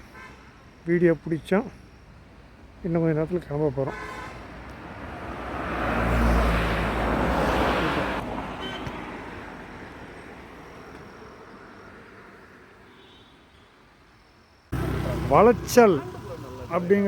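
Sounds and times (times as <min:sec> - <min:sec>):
road vehicle passing: 0:04.2 - 0:12.8, 0:14.7 - 0:17.0.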